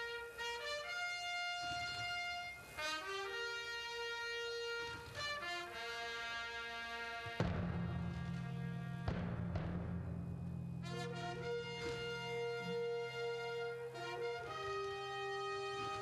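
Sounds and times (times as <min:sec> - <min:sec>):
brass fanfare of held chords: 0:00.0 - 0:09.3, 0:10.8 - 0:16.0
loud low drum roll: 0:07.4 - 0:12.5.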